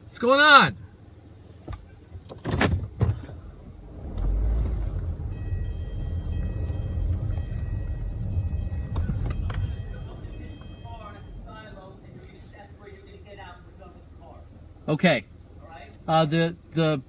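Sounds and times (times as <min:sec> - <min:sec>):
car engine and road rumble: 0:00.0 - 0:17.0
faint high tones: 0:04.8 - 0:12.6.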